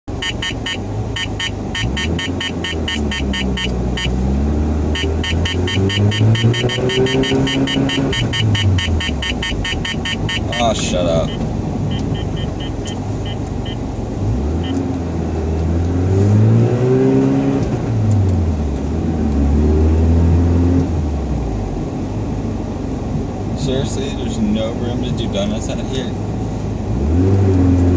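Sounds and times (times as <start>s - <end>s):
rotary engine revving: 0.5s - 18.4s
rapid high-pitched ticking: 4.9s - 13.8s.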